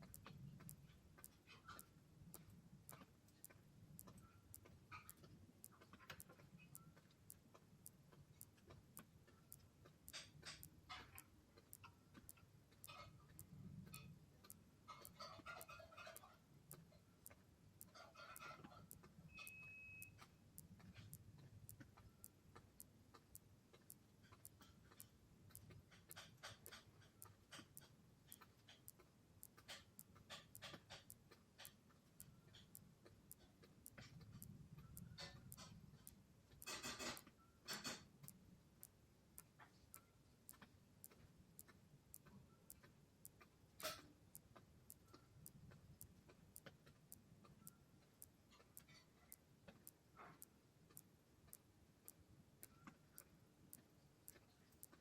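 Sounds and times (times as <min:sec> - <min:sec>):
faint regular ticking: 0:00.0 - 0:55.0
soft irregular clicks: 0:00.0 - 0:55.0.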